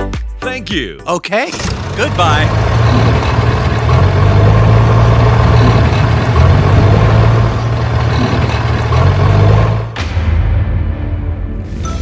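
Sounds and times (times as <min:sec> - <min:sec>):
engine idling: 0:01.5 - 0:10.0.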